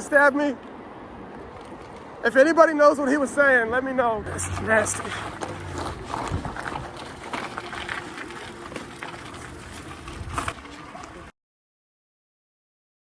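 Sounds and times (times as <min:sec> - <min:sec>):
street noise: 0:00.0 - 0:11.3
faint voices: 0:04.3 - 0:11.3.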